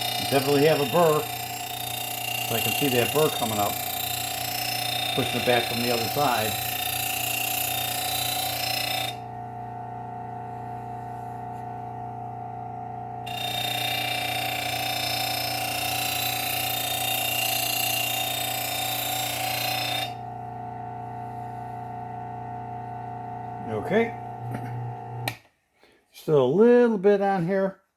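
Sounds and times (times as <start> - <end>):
blade grinding on belt hiss: 0.0 - 9.2
belt sharpener motor hum: 0.0 - 25.4.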